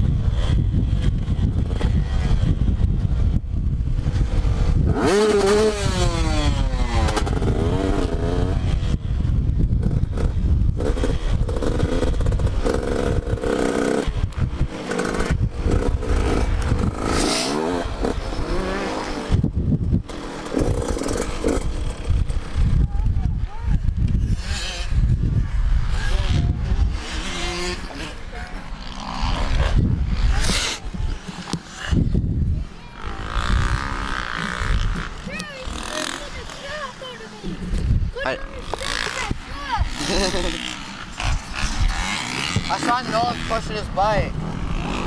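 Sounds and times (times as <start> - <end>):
motocross bike engine revving: 0.0 - 45.0.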